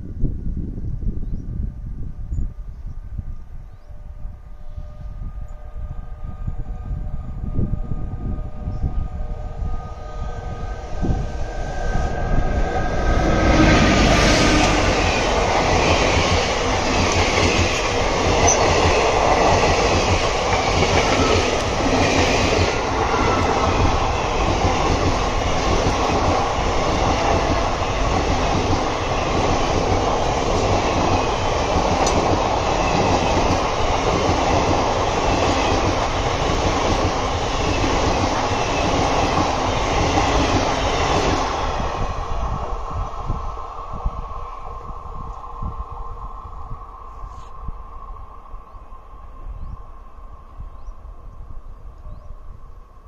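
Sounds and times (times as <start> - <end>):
electric locomotive passing: 3.8 - 53.0
train wheels clattering over rails: 13.2 - 41.7.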